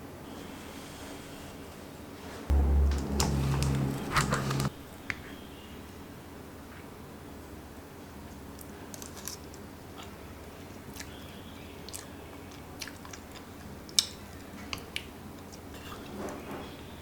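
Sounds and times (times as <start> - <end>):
food handling clicks and crackles: 8.9 - 9.6.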